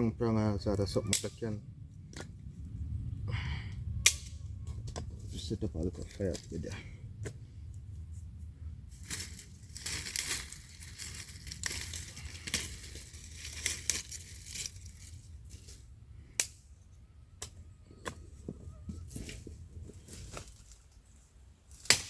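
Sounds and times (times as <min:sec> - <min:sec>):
twigs rustling and crackling: 0:00.7 - 0:02.8, 0:04.0 - 0:16.6, 0:18.1 - 0:22.0
sticks snapping: 0:01.1 - 0:01.3, 0:04.0 - 0:04.4, 0:09.0 - 0:15.0, 0:16.4 - 0:16.6, 0:21.7 - 0:22.0.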